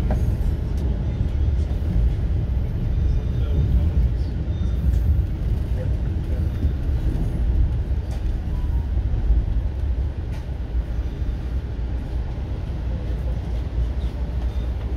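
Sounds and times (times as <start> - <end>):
train running noise on board: 0.0 - 14.9.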